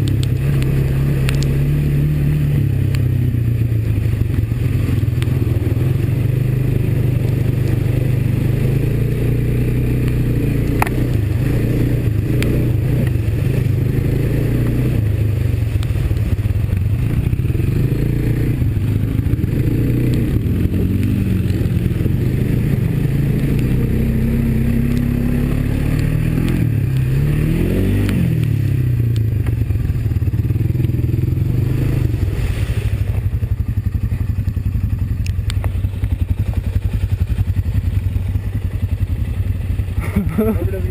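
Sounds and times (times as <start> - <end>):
atv engine revving: 0.0 - 40.9.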